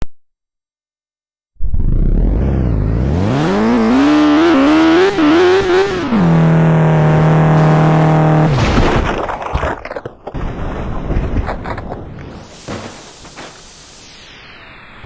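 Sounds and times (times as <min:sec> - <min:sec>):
motorcycle engine revving: 0:01.6 - 0:08.6.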